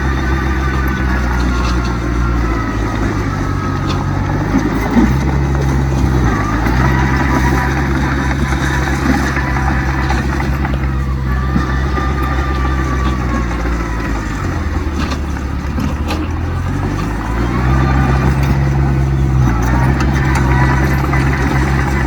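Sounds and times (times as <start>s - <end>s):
diesel machinery engine: 0.0s - 22.0s.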